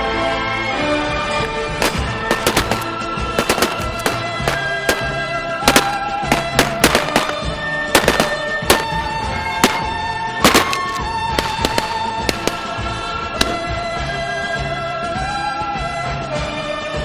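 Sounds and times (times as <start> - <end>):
sharp bangs: 1.4 - 13.9.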